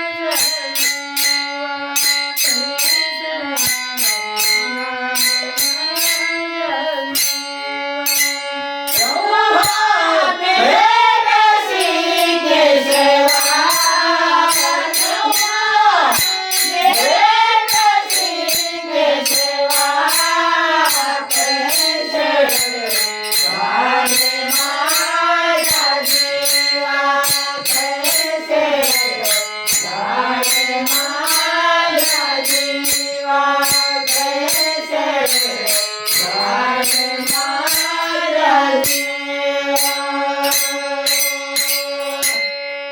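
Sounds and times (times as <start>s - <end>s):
held instrumental notes: 0.0s - 42.9s
jingling percussion: 0.0s - 42.9s
woman singing folk song: 9.0s - 18.5s.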